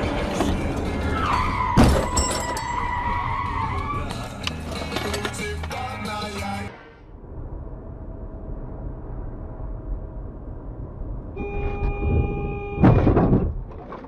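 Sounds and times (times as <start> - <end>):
moving car road noise: 0.0 - 14.0
car horn blaring: 11.4 - 13.2.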